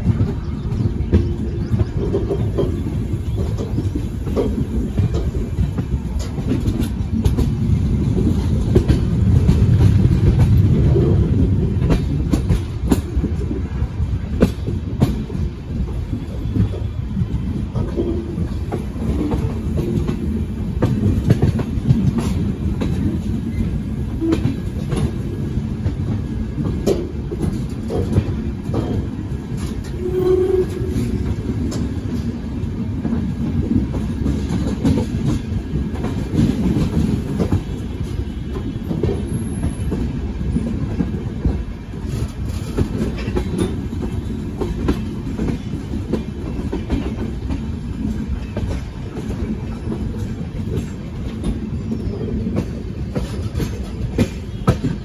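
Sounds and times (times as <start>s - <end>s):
train low rumble: 0.0s - 55.0s
wheels clacking over rail joints: 0.0s - 55.0s.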